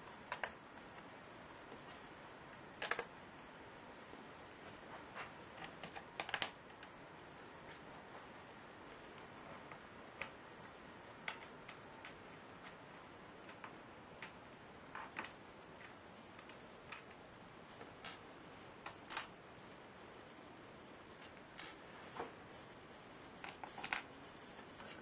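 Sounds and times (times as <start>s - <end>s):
faint steady hiss: 0.0s - 25.0s
laptop clicks and taps: 0.2s - 0.6s, 5.6s - 6.9s.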